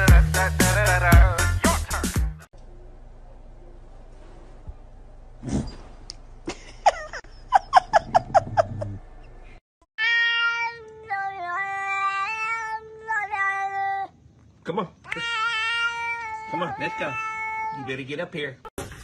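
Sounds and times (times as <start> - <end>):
cat meowing: 15.1 - 17.9.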